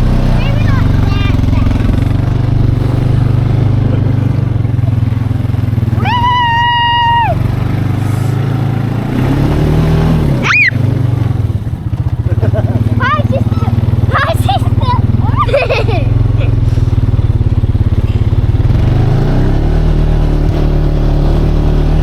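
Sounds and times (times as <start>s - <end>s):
atv engine running: 0.0s - 22.0s
child yelling: 0.3s - 1.8s, 6.0s - 7.5s, 10.4s - 10.8s, 12.9s - 15.6s
rising and falling shriek: 6.0s - 8.4s, 10.3s - 10.9s.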